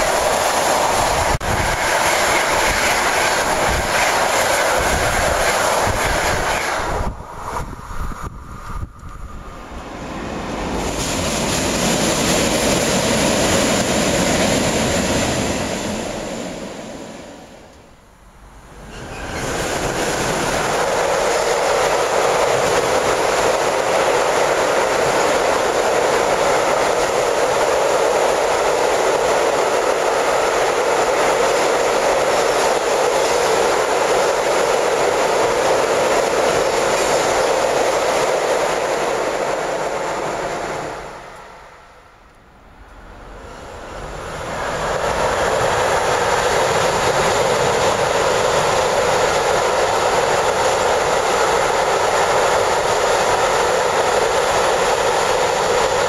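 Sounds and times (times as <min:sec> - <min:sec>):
freight train on steel bridge: 0:00.0 - 0:56.0
passing train: 0:00.0 - 0:56.0.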